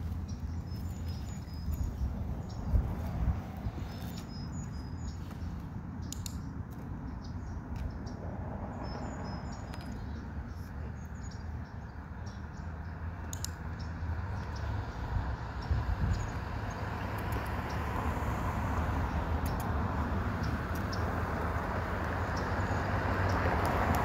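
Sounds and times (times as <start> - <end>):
small birds chirping: 0.0 - 24.0
light clicks: 6.0 - 7.0, 13.2 - 14.6.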